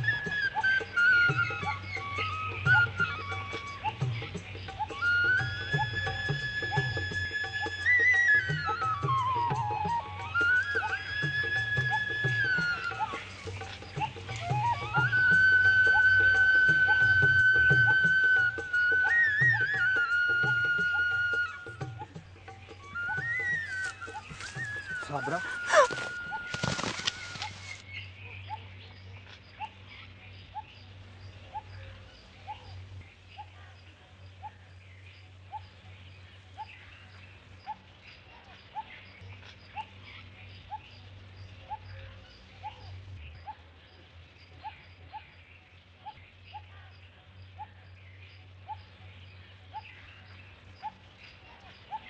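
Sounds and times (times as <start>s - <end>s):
bird short rising call: 22.9s - 27.8s.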